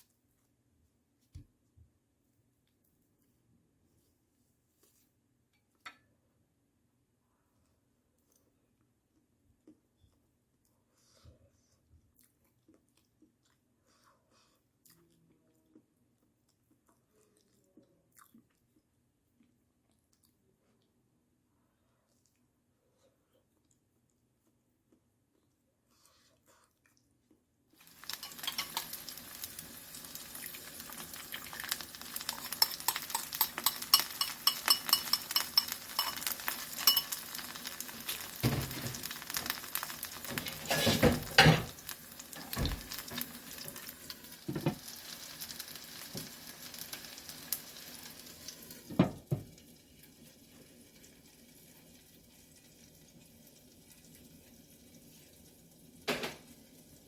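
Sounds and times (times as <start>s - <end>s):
food sizzling in a frying pan: 27.8s - 57.0s
utensil clattering against pan: 28.1s - 29.0s, 32.5s - 37.2s.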